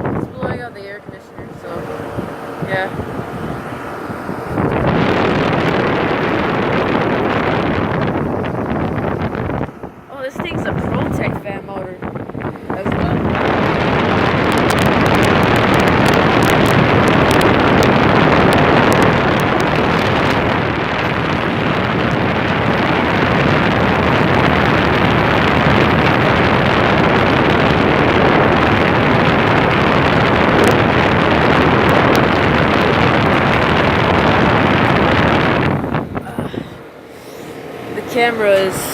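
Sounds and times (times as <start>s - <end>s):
condenser fan blowing air: 0.0s - 38.9s.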